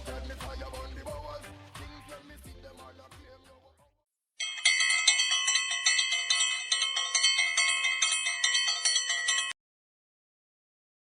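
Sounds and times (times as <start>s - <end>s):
bright bell-like chimes: 4.4s - 9.6s.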